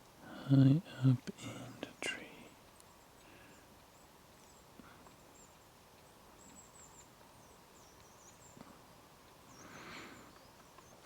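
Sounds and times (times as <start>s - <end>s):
faint high bird chirps: 1.9s - 8.8s, 9.4s - 11.0s.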